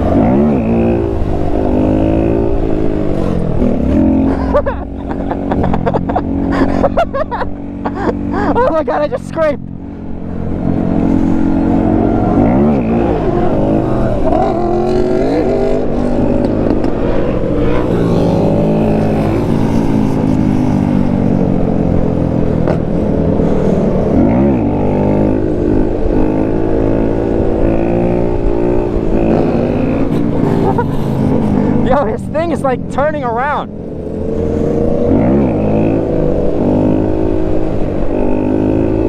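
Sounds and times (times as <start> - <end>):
motorcycle engines revving: 0.0 - 39.0.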